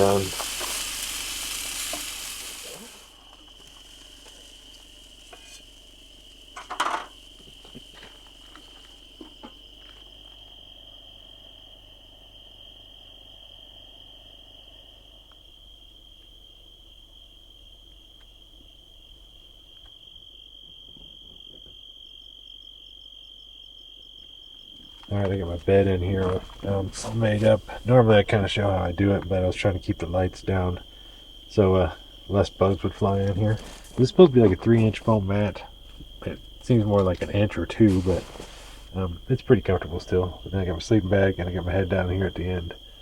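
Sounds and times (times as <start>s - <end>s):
crickets chirping: 0.0s - 43.0s.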